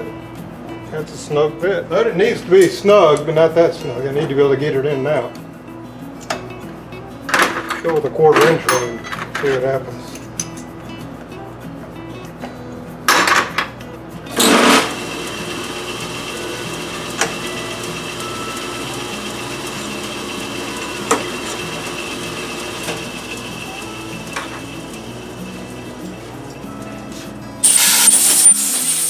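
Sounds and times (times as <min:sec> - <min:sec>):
machine tool whining: 0:14.4 - 0:27.0, 0:27.6 - 0:29.0
loud noisy bursts: 0:27.6 - 0:29.0.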